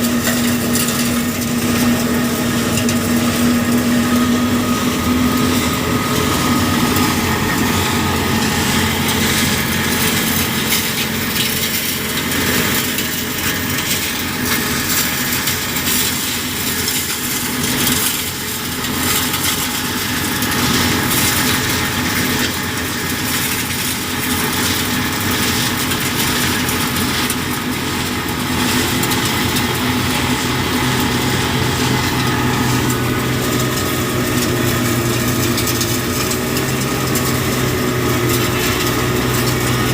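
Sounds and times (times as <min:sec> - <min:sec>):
road repair machinery engine: 0:00.0 - 0:39.9.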